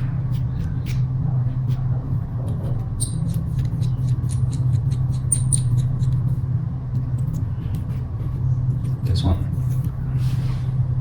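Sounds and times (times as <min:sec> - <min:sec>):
steady low hum: 0:00.0 - 0:11.0
small parts squeaking: 0:03.0 - 0:06.2.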